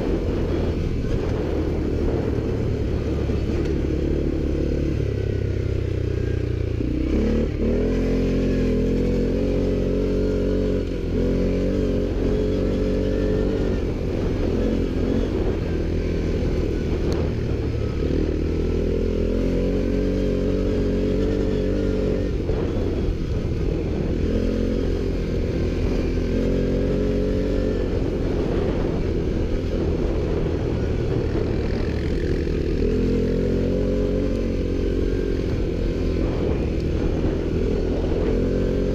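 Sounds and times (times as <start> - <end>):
atv engine revving under load: 0.0 - 38.9.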